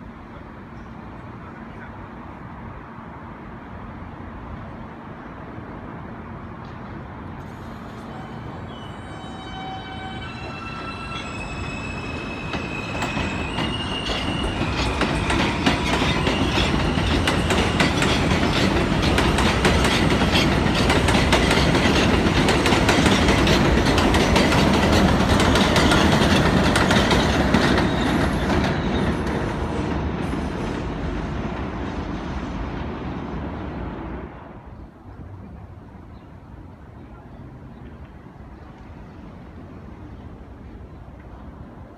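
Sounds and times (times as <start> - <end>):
train wheels clacking over joints: 12.4 - 30.6.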